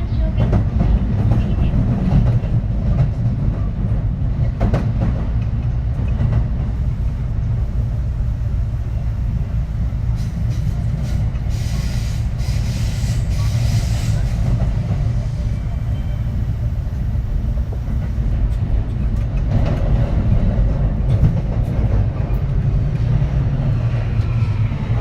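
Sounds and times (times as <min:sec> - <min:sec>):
train running rumble: 0:00.0 - 0:25.0
hiss: 0:10.1 - 0:14.5.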